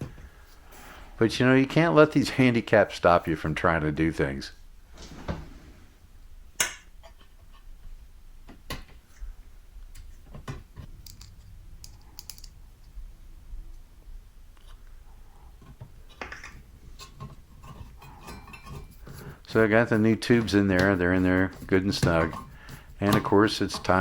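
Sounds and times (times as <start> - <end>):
low steady rumble: 9.2 - 16.0
small hard parts clicking: 10.8 - 12.6.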